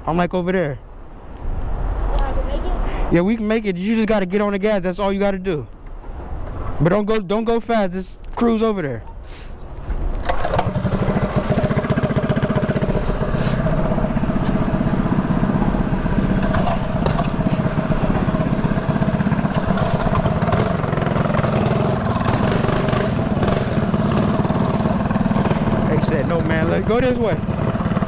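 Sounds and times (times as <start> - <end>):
mini bike engine running: 10.2 - 28.0.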